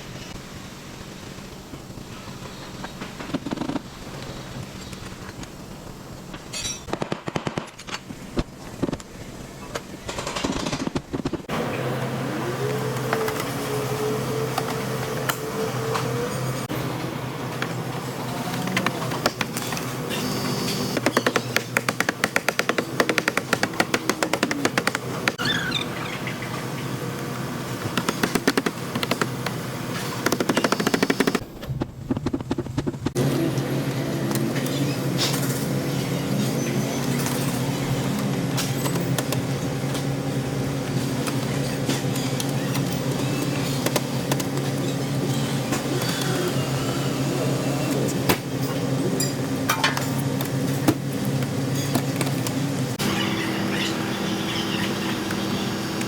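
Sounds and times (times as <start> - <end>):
motor humming: 11.4 - 38.5, 42.4 - 49.2, 52.8 - 56.0
steady low hum: 21.7 - 41.6.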